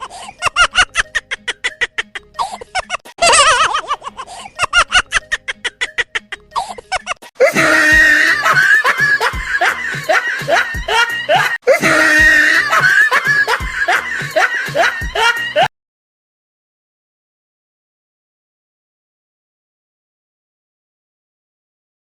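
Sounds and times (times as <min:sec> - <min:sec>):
high-pitched laughter: 0:00.0 - 0:15.7
laughing and shrieking voices: 0:00.0 - 0:15.7.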